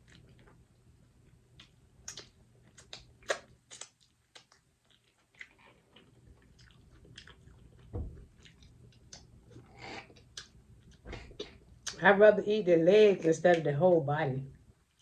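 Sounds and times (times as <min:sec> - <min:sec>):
chewing and biting: 0:01.2 - 0:12.0
wet mouth clicks: 0:01.6 - 0:04.6
dull low thump: 0:07.9 - 0:08.4.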